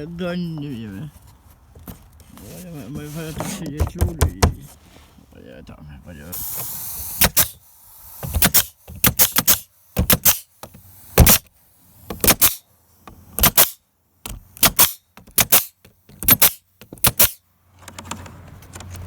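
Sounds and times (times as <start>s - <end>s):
nail gun firing: 6.4s - 10.5s, 11.1s - 11.5s, 12.1s - 12.6s, 13.4s - 13.8s, 14.6s - 17.4s.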